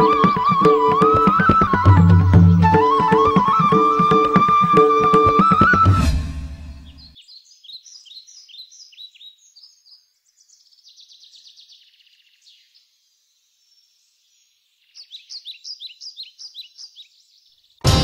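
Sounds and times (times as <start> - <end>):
high falling bird chirps: 6.8 - 11.6.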